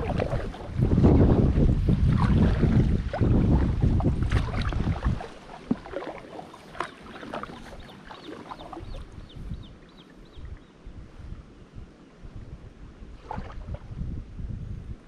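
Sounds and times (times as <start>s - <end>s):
water splashing from paddle strokes: 0.0s - 9.2s, 13.2s - 13.9s
wind rumbling on microphone: 0.0s - 15.0s.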